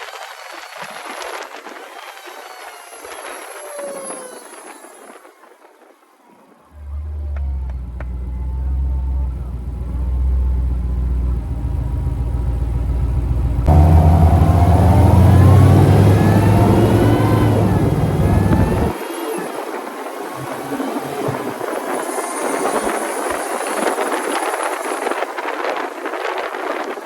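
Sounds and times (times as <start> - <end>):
supercharger whine: 6.7 - 27.0
car exhaust rumble: 6.8 - 19.0.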